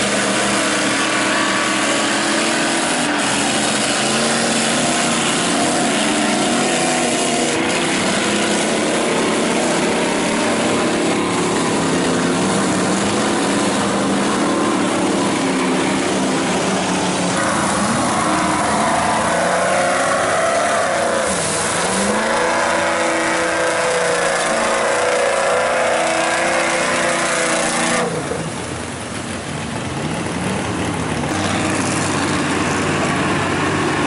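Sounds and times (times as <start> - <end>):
truck engine revving: 0.0 - 34.0.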